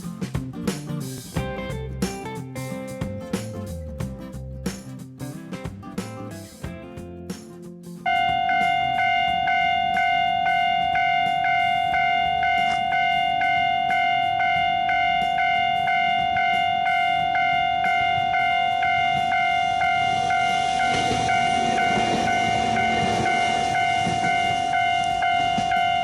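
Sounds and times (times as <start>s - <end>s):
electric train rumbling past: 8.0s - 26.0s
level crossing alarm ringing: 8.1s - 26.0s
steady tone: 8.2s - 26.0s.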